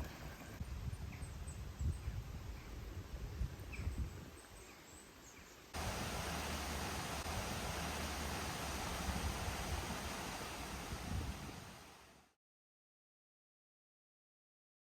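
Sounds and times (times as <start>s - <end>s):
low rumbling: 5.8s - 11.8s
steady hiss: 5.8s - 12.4s.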